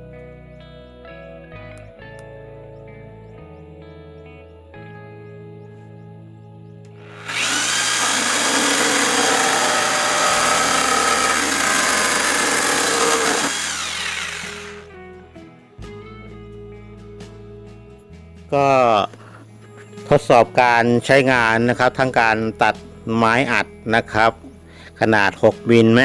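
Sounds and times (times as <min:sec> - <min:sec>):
soft background music: 0:00.0 - 0:07.0, 0:14.8 - 0:26.0
electric jigsaw cutting: 0:07.0 - 0:14.9.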